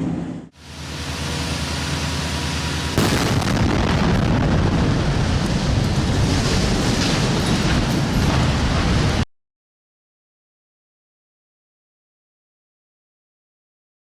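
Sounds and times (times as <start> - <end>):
avalanche roaring: 0.0 - 9.2.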